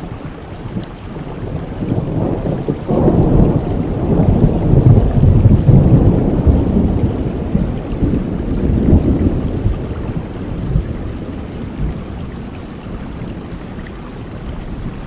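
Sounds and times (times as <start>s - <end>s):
heavy rain: 0.0s - 15.0s
thunder rolling: 1.3s - 12.5s.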